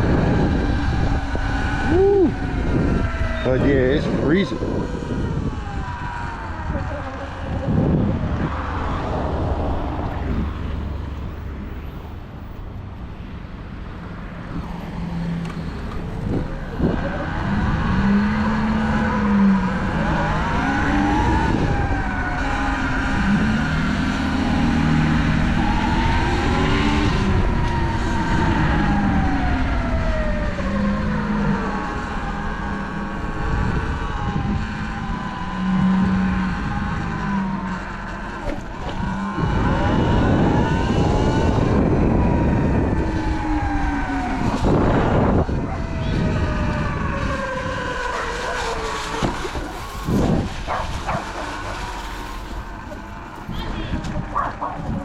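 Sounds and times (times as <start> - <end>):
wind rumble on microphone: 0.0 - 55.0.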